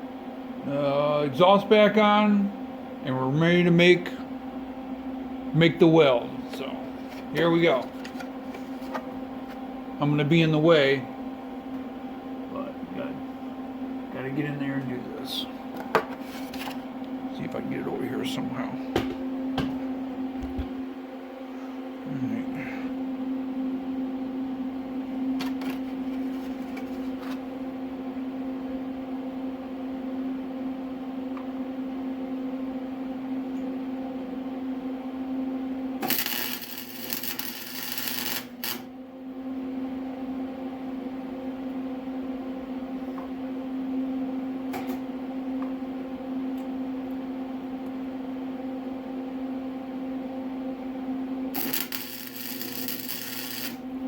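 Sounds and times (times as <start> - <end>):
welding machine hum: 25.4 - 27.7, 36.0 - 39.0, 51.5 - 54.0
loud welding arc noise: 36.0 - 38.9, 51.5 - 54.0.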